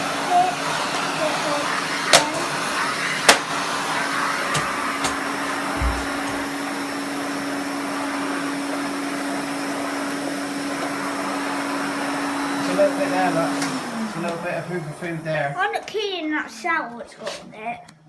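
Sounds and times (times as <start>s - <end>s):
vacuum cleaner humming: 0.0s - 15.7s
dull knock: 4.6s - 6.5s.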